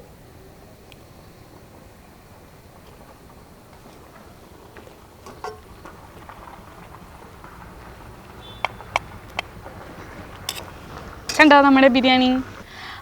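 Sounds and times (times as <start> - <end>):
tableware clicking and tapping: 5.3 - 5.7.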